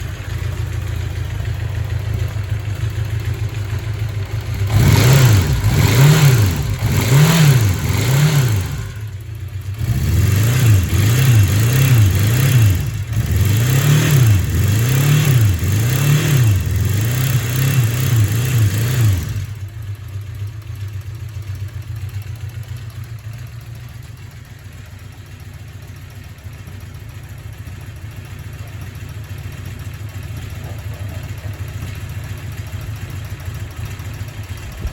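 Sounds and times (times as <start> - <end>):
motorcycle engine revving: 0.0 - 24.2.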